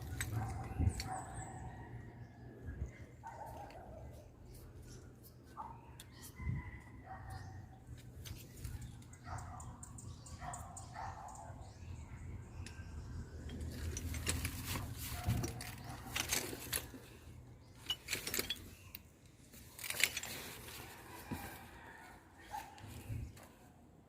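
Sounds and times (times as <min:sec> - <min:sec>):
light metal clinks and rattles: 0:13.4 - 0:19.1.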